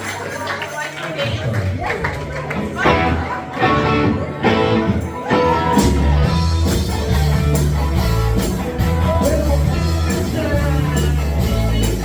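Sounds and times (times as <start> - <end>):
live rock band playing: 2.3 - 12.0
heavy bass: 2.7 - 12.0
person singing: 8.8 - 12.0.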